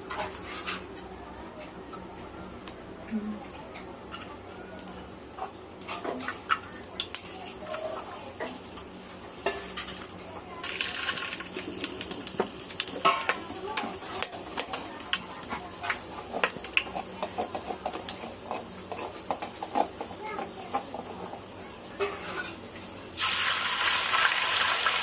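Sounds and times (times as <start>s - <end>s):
hot oil sizzling in a pan: 8.4s - 25.0s
spoon scraping a pan: 13.0s - 21.4s, 22.0s - 22.6s.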